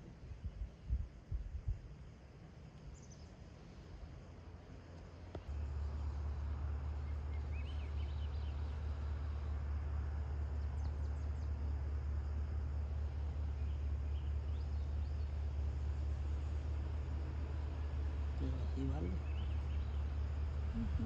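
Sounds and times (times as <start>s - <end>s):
steady low rumble: 0.0s - 21.0s
faint bird chirps: 2.9s - 3.8s, 5.3s - 9.6s, 13.0s - 16.6s, 17.5s - 21.0s.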